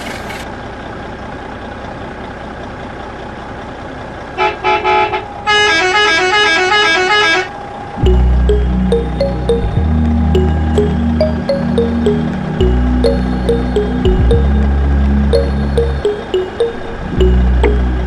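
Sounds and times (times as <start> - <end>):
music with heavy bass: 8.1 - 18.0.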